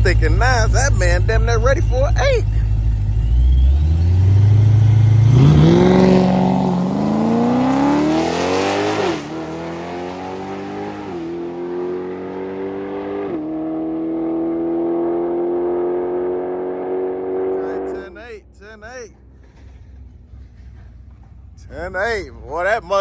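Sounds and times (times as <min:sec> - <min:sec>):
drag car accelerating: 0:00.0 - 0:18.1.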